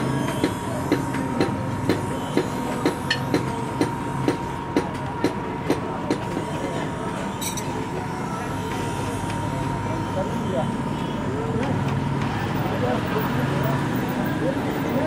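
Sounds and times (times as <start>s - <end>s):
hammer striking steel on anvil: 1.4s - 4.4s, 7.4s - 7.8s.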